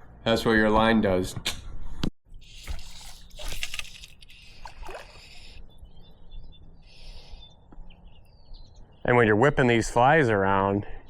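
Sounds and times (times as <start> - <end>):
river water sloshing and splashing: 2.5 - 5.6.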